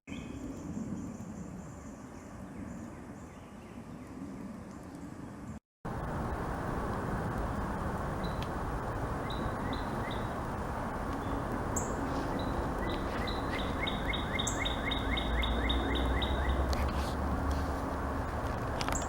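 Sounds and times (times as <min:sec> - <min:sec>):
songbird singing: 0:00.1 - 0:05.6, 0:08.1 - 0:17.0.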